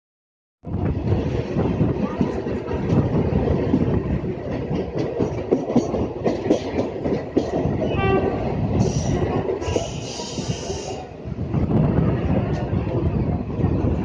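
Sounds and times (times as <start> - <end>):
train wheels clattering over rails: 1.0 - 10.9.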